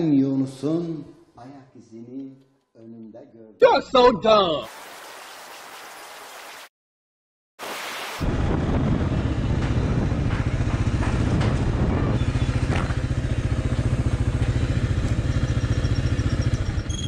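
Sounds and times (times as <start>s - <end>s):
motorcycle engine pulsing: 8.8s - 17.0s.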